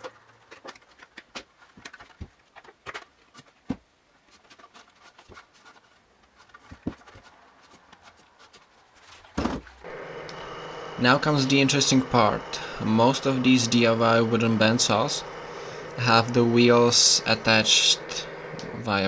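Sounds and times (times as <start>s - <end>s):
clicks and knocks of hands working: 0.0s - 10.4s.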